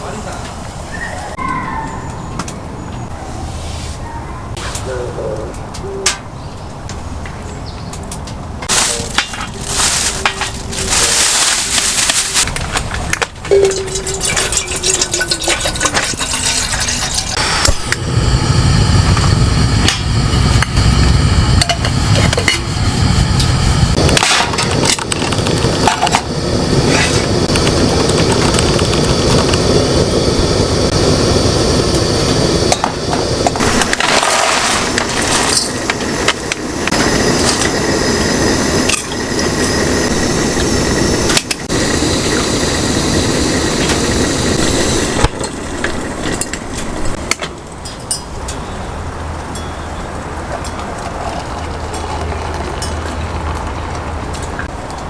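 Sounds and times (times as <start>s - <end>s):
steady rushing noise: 14.2s - 47.8s.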